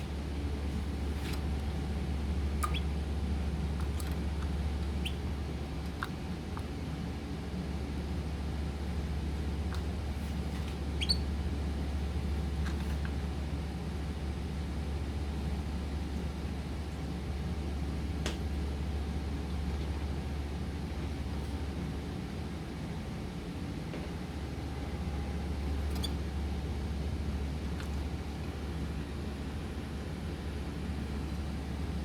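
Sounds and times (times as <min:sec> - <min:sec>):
low electrical hum: 0:00.0 - 0:32.0
pet birds chirping: 0:02.6 - 0:02.9, 0:04.9 - 0:05.3, 0:11.0 - 0:11.3.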